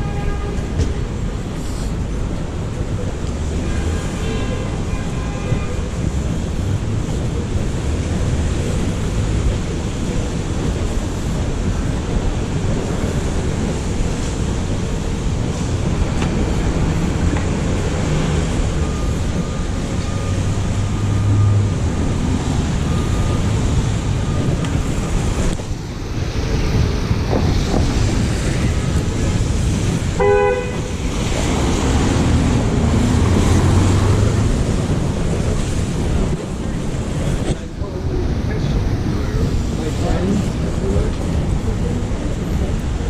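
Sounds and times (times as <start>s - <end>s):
vehicle noise rumble: 0.0s - 43.0s
short horn toot: 30.2s - 30.9s.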